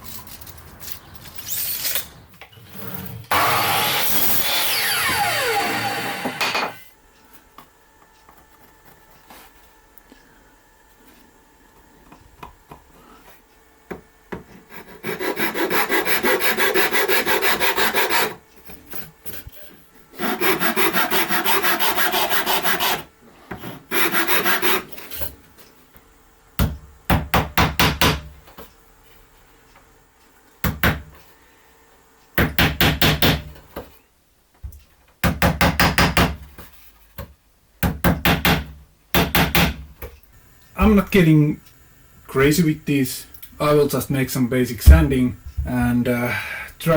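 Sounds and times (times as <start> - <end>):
hand sanding wood: 14.6 - 18.4, 20.2 - 23.1, 23.9 - 24.9.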